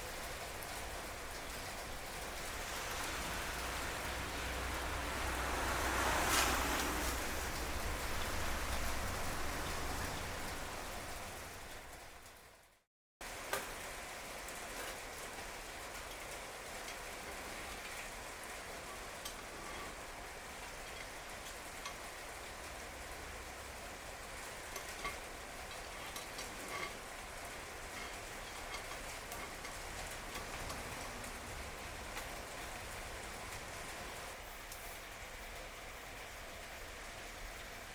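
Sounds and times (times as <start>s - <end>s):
low rumbling noise: 0.0s - 12.2s
wood fire crackling: 0.0s - 12.6s, 13.2s - 37.9s.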